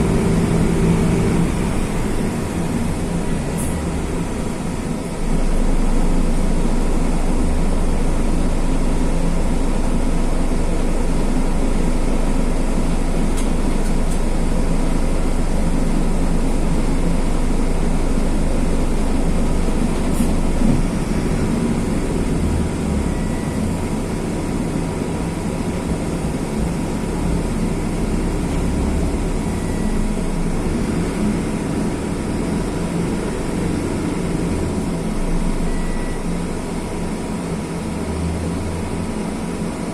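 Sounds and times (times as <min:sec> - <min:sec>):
bus diesel engine droning: 0:00.0 - 0:39.9.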